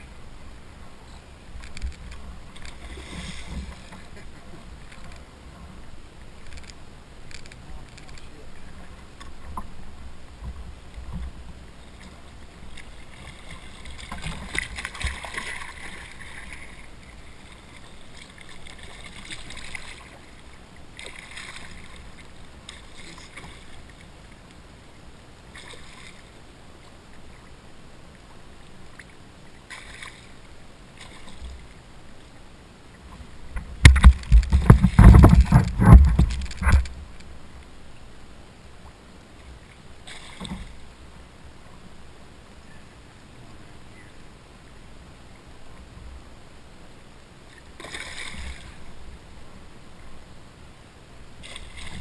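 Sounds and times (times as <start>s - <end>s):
water sloshing around kayak: 0.0s - 52.0s
rumbling knocking noise: 33.8s - 36.9s.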